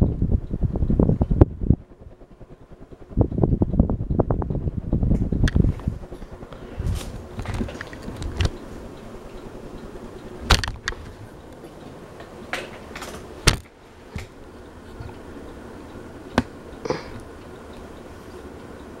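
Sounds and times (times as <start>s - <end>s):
wind buffeting microphone: 0.0s - 12.4s
ceiling fan whirring: 0.0s - 19.0s.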